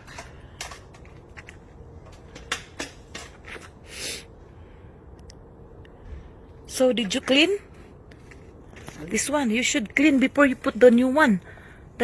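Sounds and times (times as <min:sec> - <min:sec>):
light clicks of parts: 0:05.1 - 0:06.0.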